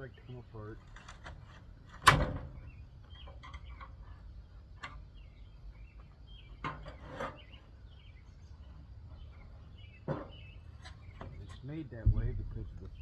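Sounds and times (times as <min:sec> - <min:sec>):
low rumble: 0:12.0 - 0:13.0.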